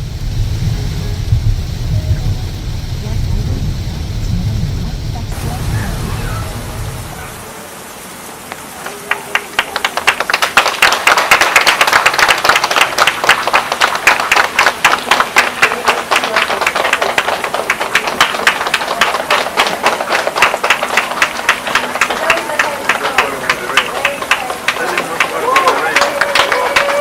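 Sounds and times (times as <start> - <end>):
people clapping: 8.4 - 27.0.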